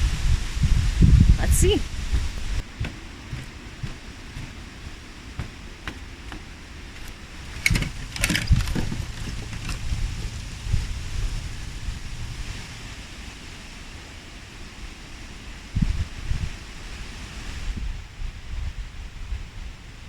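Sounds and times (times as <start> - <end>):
wind on microphone: 0.0 - 20.0
sharp knocks: 2.4 - 11.6.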